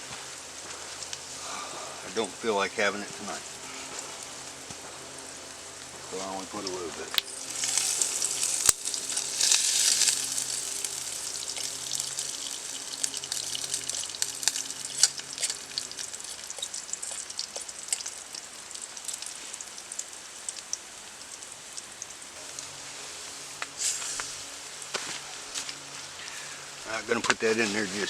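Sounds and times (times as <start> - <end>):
vegetables sizzling in a frying pan: 0.0 - 28.0
crackling pops: 3.1 - 22.8.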